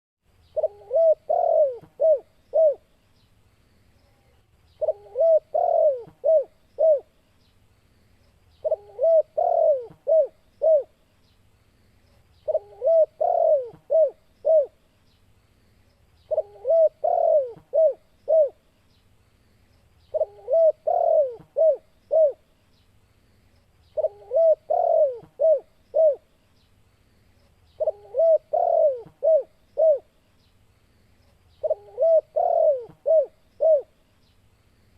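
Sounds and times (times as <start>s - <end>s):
dove cooing: 0.4s - 2.9s, 4.8s - 7.2s, 8.6s - 11.0s, 12.4s - 14.8s, 16.3s - 18.6s, 20.1s - 22.5s, 24.0s - 26.3s, 27.8s - 30.1s, 31.6s - 34.0s.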